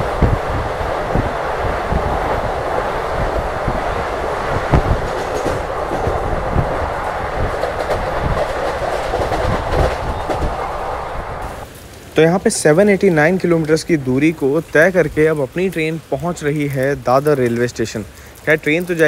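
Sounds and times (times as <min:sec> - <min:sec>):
wheels clacking over rail joints: 0:00.0 - 0:11.6
wheel and rail noise: 0:00.0 - 0:19.0.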